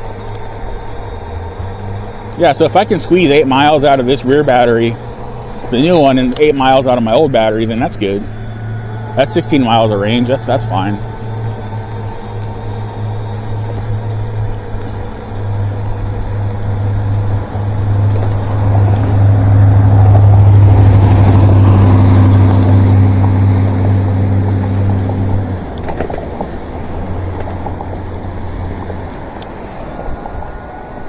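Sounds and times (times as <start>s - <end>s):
clicks: 0.0s - 19.7s
electric motor hum: 0.0s - 31.0s.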